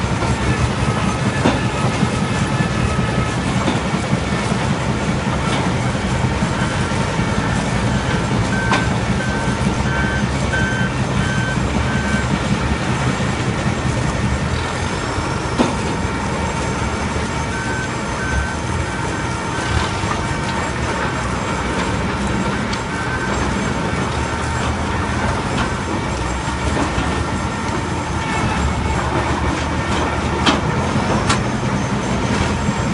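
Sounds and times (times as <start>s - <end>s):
log debarker machine running: 0.0s - 32.9s
reversing alarm beeping: 0.2s - 3.4s, 5.8s - 12.4s, 16.9s - 20.4s, 22.5s - 25.7s.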